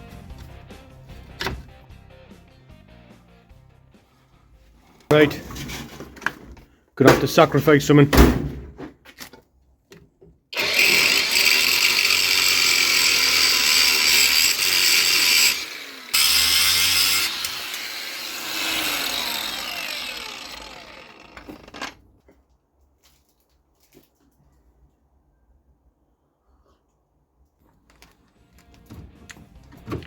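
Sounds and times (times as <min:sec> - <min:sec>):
angle grinder cutting steel: 0:10.6 - 0:21.9.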